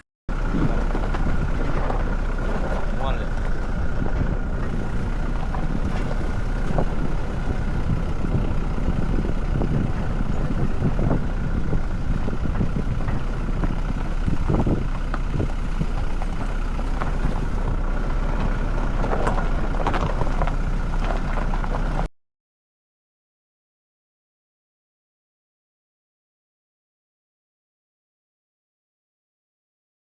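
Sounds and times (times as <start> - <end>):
car engine and road rumble: 0.3 - 22.1
faint constant whine: 0.4 - 22.1.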